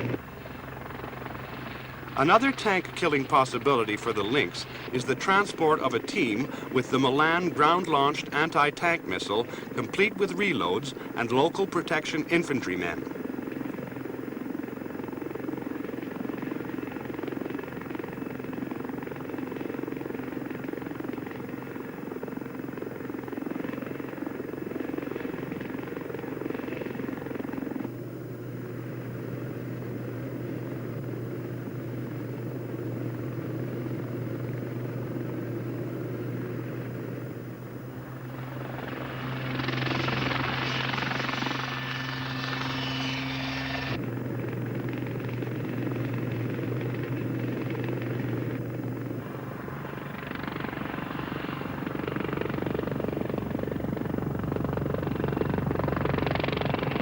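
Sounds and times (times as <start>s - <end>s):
helicopter rotor and engine drone: 0.0s - 57.0s
hissing rush: 38.4s - 44.0s.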